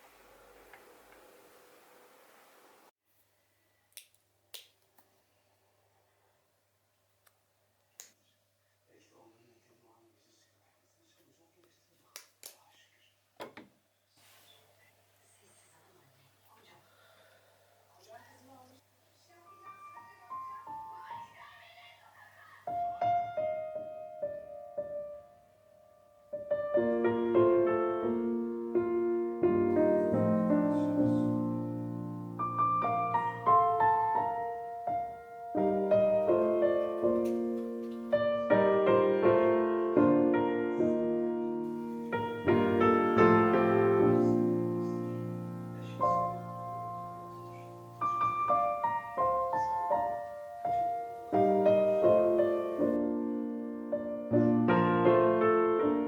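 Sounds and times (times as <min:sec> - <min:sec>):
gentle solo piano music: 0:22.8 - 0:56.0.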